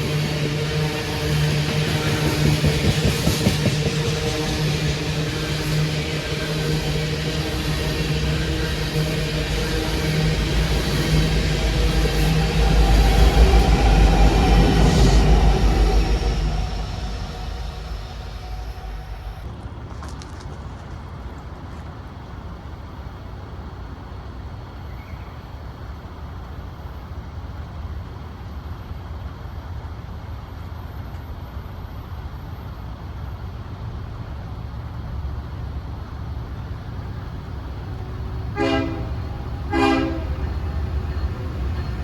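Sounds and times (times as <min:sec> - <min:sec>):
diesel locomotive rumble: 0:00.0 - 0:42.0
locomotive air horn blasts: 0:38.5 - 0:40.9.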